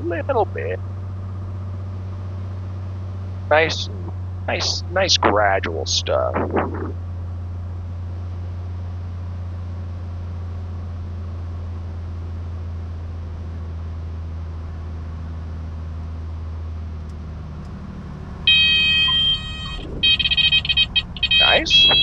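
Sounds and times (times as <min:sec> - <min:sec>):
airplane engine droning: 0:00.0 - 0:09.6, 0:17.0 - 0:22.0
stall warning horn: 0:18.5 - 0:22.0.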